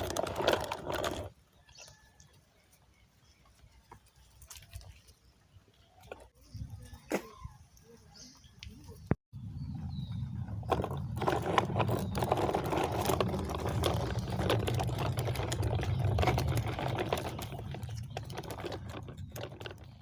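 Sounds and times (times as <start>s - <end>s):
engine clattering and rumbling: 0.0s - 1.4s, 9.6s - 20.0s.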